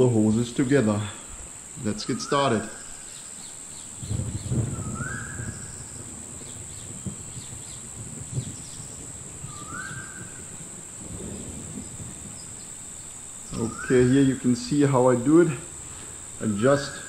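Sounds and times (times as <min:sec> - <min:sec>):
high-pitched chirring: 0:13.5 - 0:15.1.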